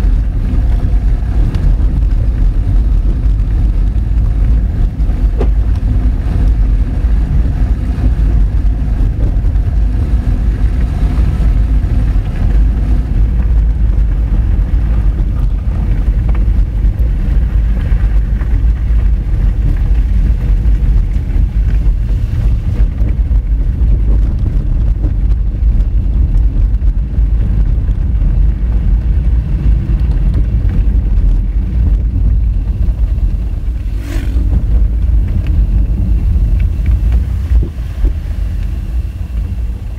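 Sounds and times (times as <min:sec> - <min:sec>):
car engine: 0:00.0 - 0:39.9
tyres rumbling on gravel: 0:00.0 - 0:39.9.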